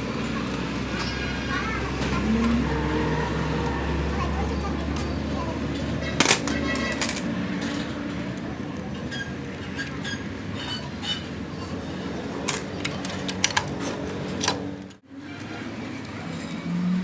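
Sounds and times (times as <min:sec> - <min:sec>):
metal tools clinking: 0:05.8 - 0:07.9, 0:12.4 - 0:14.9.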